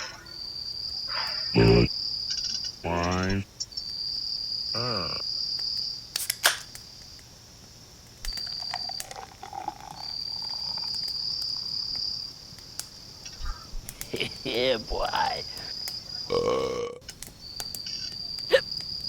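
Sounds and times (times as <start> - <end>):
crickets trilling: 0.0 - 19.0
sharp crack: 5.6 - 7.2.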